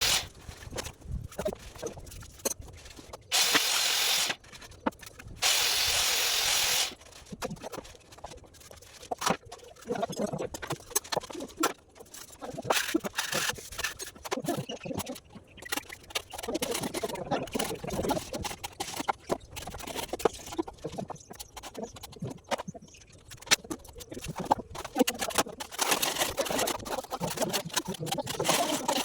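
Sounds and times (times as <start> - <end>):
loud hissing sprays: 0.0 - 0.3, 3.3 - 4.4, 5.4 - 7.0.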